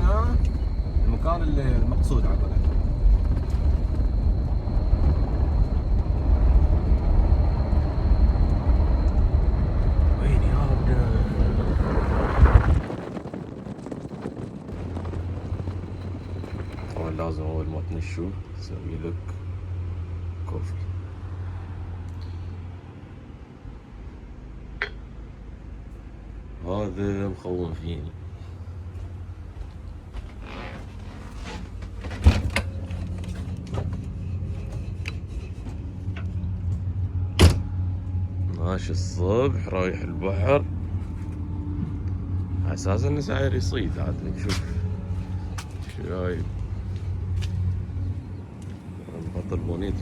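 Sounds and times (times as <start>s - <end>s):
low steady hum: 0.0s - 13.1s, 14.7s - 50.0s
wind buffeting microphone: 0.0s - 18.2s.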